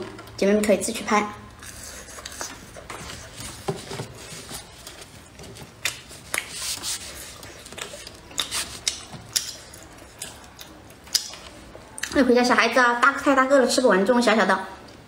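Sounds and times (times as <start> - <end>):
wet chewing and lip-smacking: 5.8 - 12.2.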